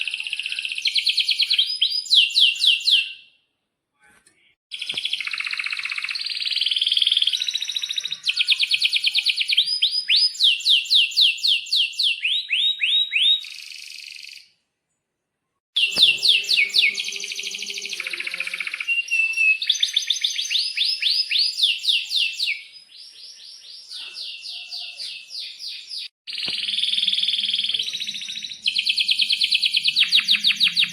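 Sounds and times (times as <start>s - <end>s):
canary singing trills: 15.8s - 30.9s.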